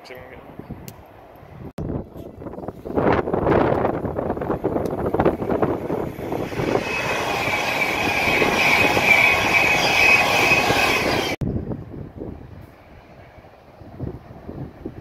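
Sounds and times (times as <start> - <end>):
train wheels rushing on rail: 3.0 - 11.4
high-pitched train whine: 4.2 - 11.4.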